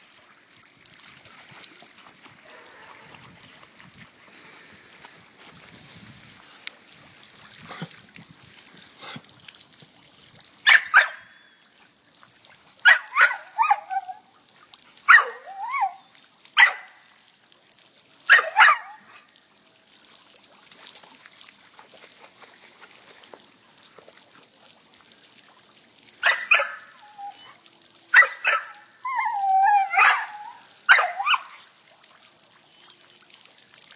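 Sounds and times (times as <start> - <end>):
faint trickle of water: 0.0 - 33.9
dog barking: 10.7 - 11.3, 12.8 - 13.9, 15.1 - 15.5, 16.6 - 17.0, 18.3 - 19.2, 26.2 - 26.9, 28.1 - 28.8, 29.9 - 31.6.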